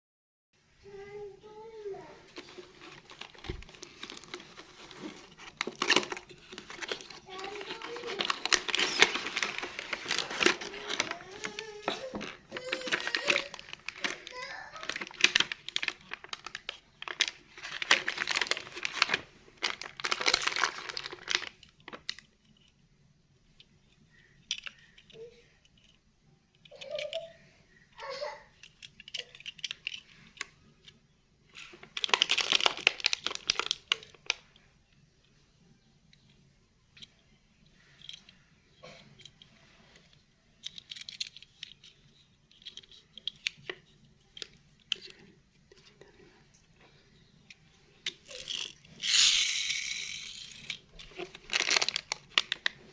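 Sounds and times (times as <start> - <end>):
crinkling rustling handling noise: 0.9 - 35.6, 36.2 - 52.9
small hard objects clicking: 48.0 - 52.8.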